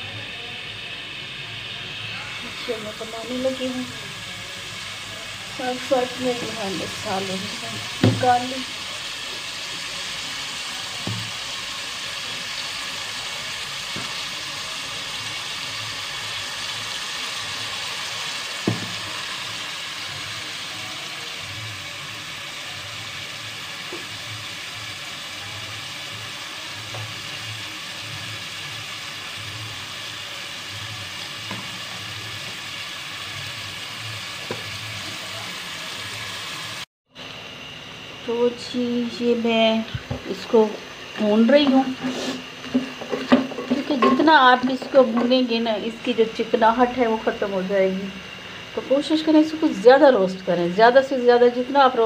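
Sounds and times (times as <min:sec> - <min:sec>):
vegetables sizzling in oil: 0:00.0 - 0:52.0.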